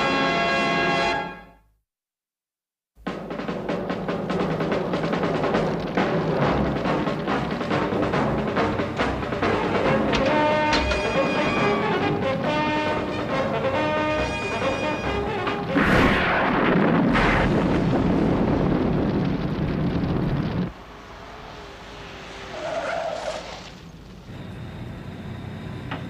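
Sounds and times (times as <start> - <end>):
orchestral music: 0.0 - 1.6, 3.1 - 16.4
heavy vehicle grinding through rubble: 3.5 - 26.0.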